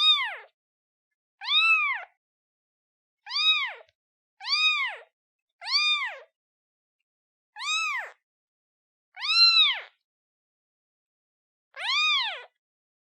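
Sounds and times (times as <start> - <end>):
kitten meowing: 0.0 - 0.5, 1.4 - 2.1, 3.3 - 5.0, 5.6 - 6.3, 7.6 - 8.2, 9.2 - 9.9, 11.8 - 12.6.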